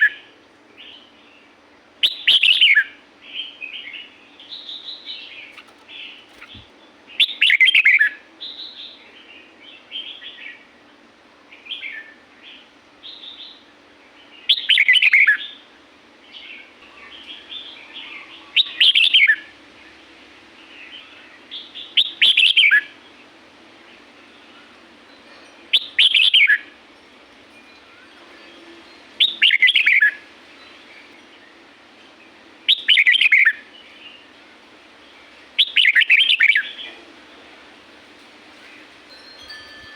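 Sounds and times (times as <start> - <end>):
bird chirps: 27.7 - 31.2, 32.7 - 34.2, 35.6 - 37.0.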